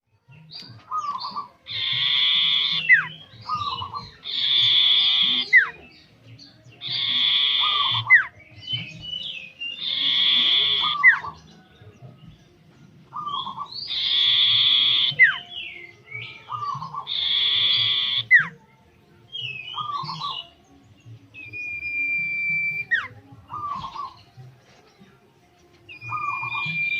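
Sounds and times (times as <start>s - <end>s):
songbird singing: 0.0s - 26.9s.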